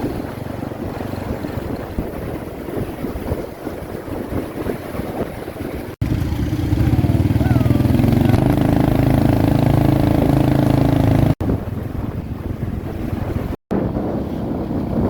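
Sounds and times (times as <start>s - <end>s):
wind noise: 0.0s - 15.0s
motorbike engine running: 6.0s - 14.2s.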